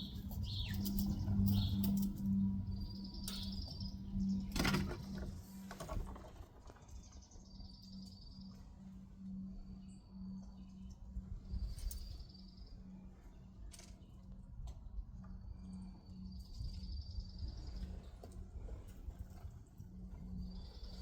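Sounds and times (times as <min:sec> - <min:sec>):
low pulsing hum: 0:00.0 - 0:21.0.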